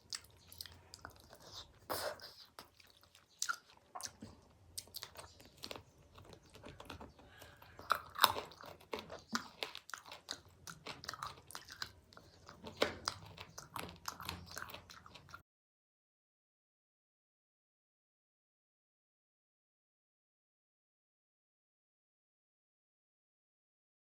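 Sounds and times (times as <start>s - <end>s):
chewing crunchy food: 0.0s - 15.4s.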